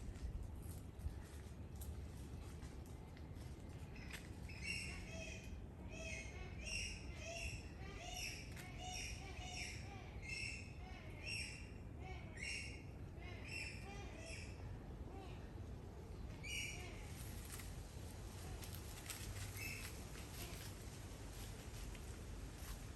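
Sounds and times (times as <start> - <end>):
bird calling: 4.0 - 14.7.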